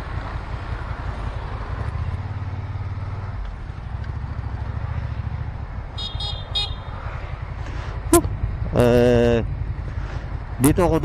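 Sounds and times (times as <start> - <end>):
motorcycle engine running: 0.0 - 11.0
vehicle horn toots: 5.9 - 6.9.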